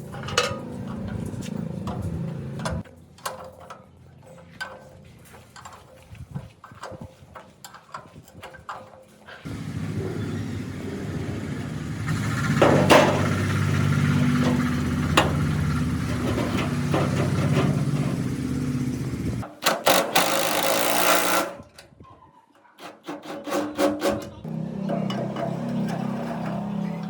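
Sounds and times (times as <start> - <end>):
workshop machine humming: 0.0 - 2.8, 9.5 - 21.5, 24.5 - 27.0
harsh grinding: 9.5 - 21.7, 23.1 - 27.0.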